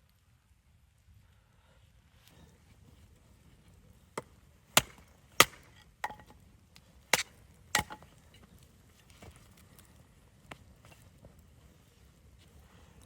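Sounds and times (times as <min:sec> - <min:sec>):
wood chopping strikes: 0:04.8 - 0:06.3, 0:07.1 - 0:08.1.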